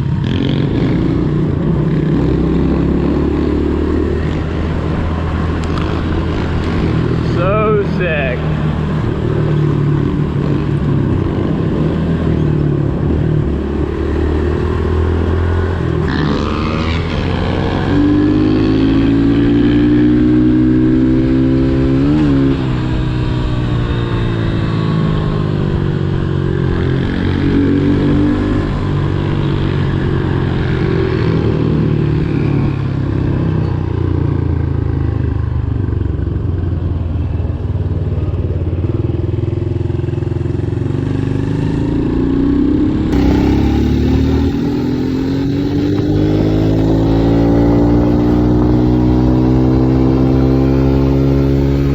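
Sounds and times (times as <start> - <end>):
pit bike engines running: 4.2 - 12.7, 43.1 - 51.9
pit bike passing close: 43.1 - 51.9.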